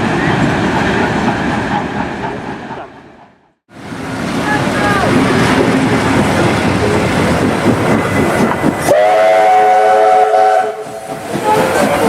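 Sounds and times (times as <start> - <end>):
steam locomotive rushing: 0.0 - 12.0
steam whistle chord: 8.9 - 10.9.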